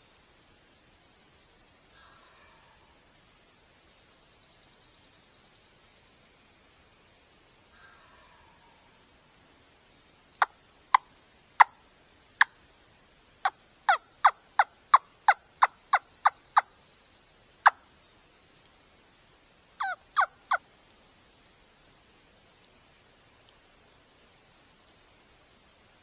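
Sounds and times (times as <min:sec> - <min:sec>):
turkey yelping: 0:13.9 - 0:14.7, 0:19.8 - 0:20.6.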